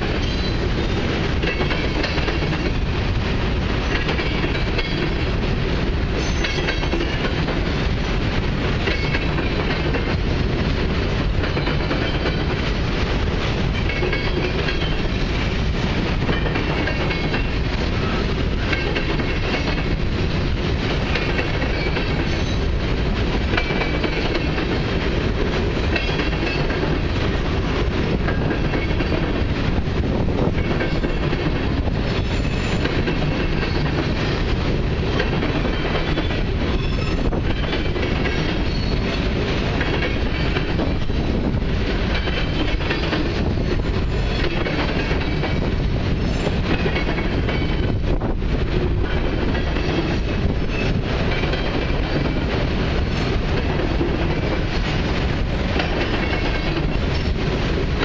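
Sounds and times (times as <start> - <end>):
clickety-clack of rail joints: 0.0 - 58.0
freight train wheels rumbling: 0.0 - 58.0.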